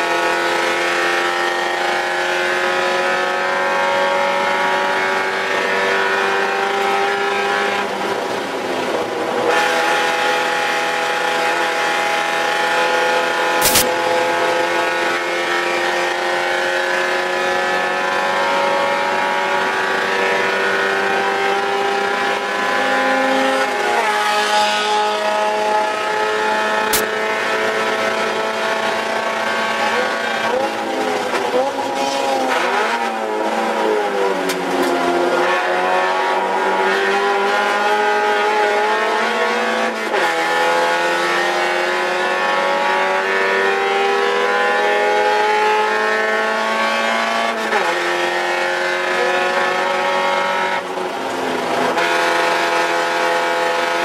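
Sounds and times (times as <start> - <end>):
race car engine at full throttle: 0.0 - 54.0
sharp click: 13.6 - 14.0, 26.9 - 27.1.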